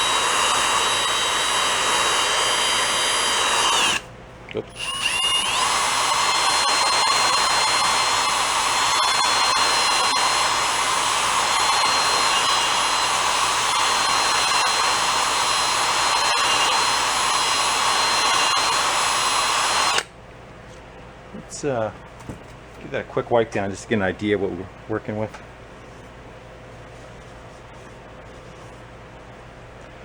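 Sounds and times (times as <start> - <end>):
hone stones hissing on bore: 0.0 - 4.0, 4.7 - 20.1
electric drill whining: 0.0 - 4.1, 4.7 - 20.1.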